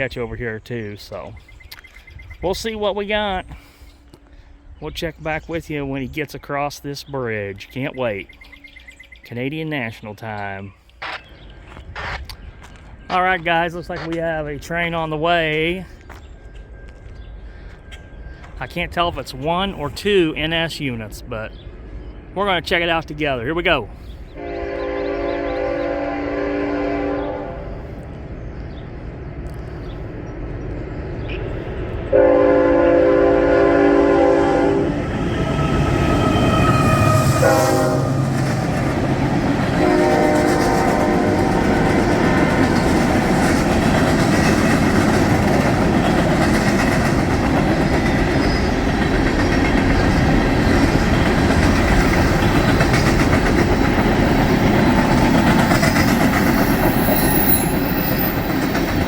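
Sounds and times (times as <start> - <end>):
train cars rumbling and clattering: 11.0 - 59.0
locomotive air horn blasts: 24.4 - 27.8, 32.1 - 38.6, 39.7 - 42.1.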